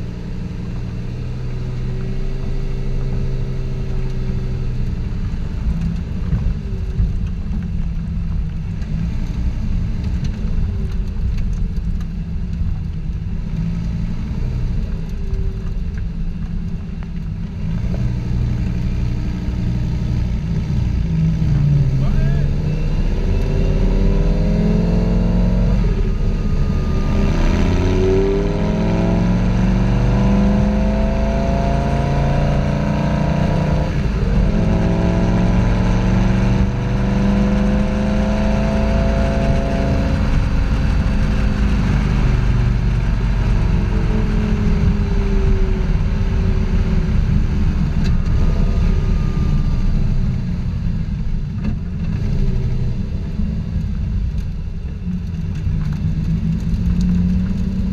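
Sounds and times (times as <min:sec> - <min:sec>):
loud sports car engine: 0:00.0 - 0:57.9.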